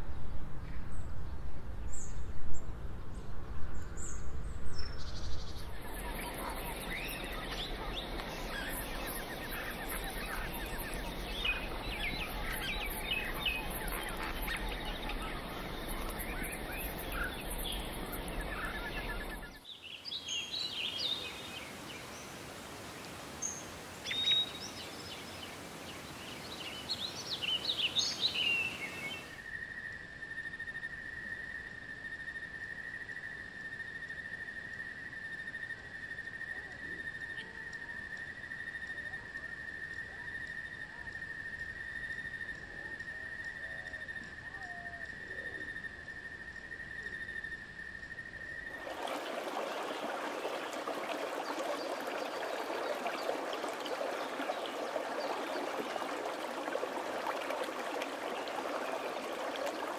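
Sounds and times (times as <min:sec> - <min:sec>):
birds chirping: 0:05.5 - 0:19.6, 0:48.7 - 0:59.9.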